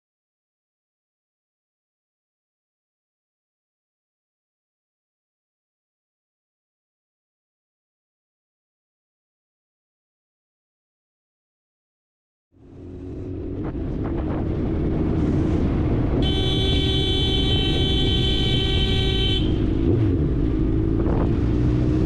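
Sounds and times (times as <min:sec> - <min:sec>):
road and wind noise: 0:12.5 - 0:22.0
vehicle horn: 0:16.2 - 0:20.0.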